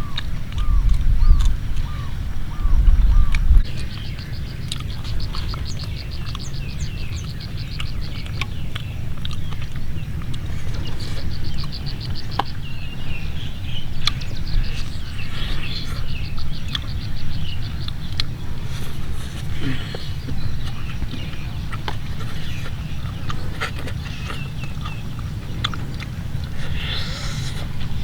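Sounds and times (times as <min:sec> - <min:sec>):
low rumble: 0:00.0 - 0:05.8
bird high trill: 0:00.0 - 0:07.6
bird chirps: 0:00.0 - 0:28.0.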